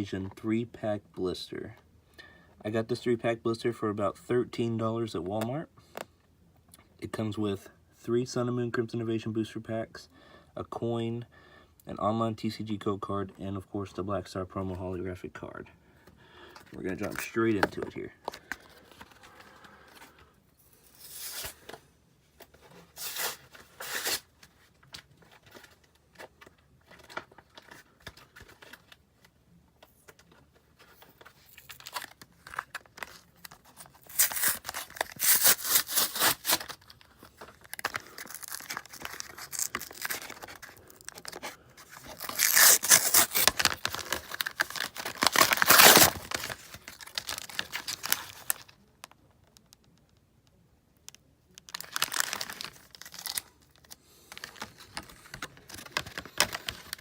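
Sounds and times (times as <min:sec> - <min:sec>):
packaging tearing and crinkling: 0:20.7 - 0:21.7, 0:23.0 - 0:24.3, 0:31.2 - 0:48.8, 0:51.6 - 0:57.0.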